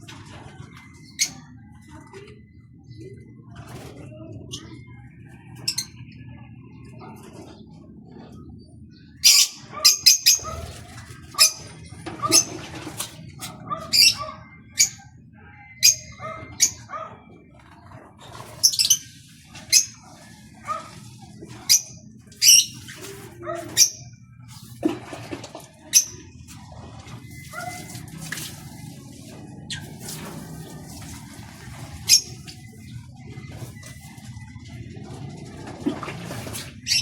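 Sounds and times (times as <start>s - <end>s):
birds splashing in water: 18.3s - 37.0s.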